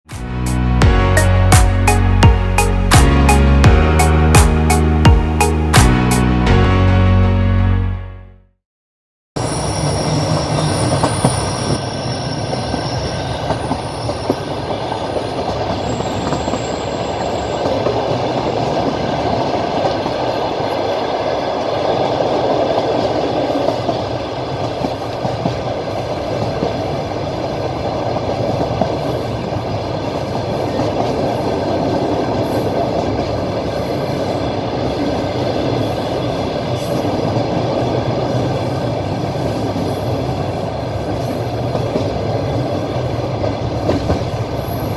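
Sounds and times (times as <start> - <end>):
train wheels rumbling on rails: 9.4 - 44.9.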